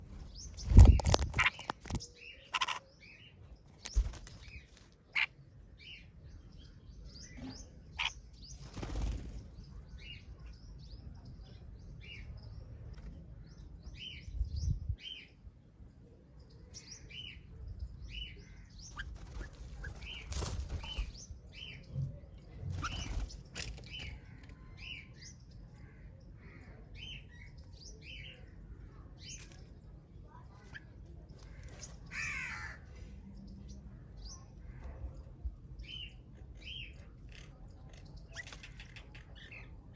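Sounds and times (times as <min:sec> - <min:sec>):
wing flutters: 0:00.0 - 0:02.8, 0:03.8 - 0:05.3, 0:18.9 - 0:21.2, 0:22.7 - 0:24.2
small birds chirping: 0:00.0 - 0:39.9.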